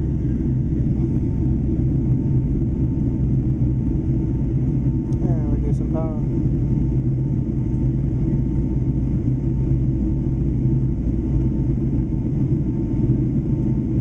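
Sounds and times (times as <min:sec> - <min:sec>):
faint steady whine: 0:00.0 - 0:14.0
low rumble of engines and airflow: 0:00.0 - 0:14.0.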